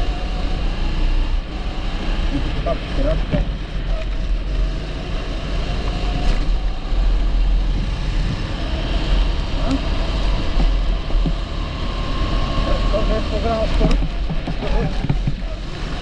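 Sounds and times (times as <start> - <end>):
kart engine running: 0.0 - 16.0.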